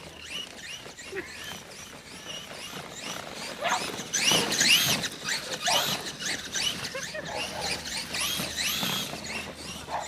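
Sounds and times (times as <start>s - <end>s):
dog whining in high squeals: 5.5s - 6.1s.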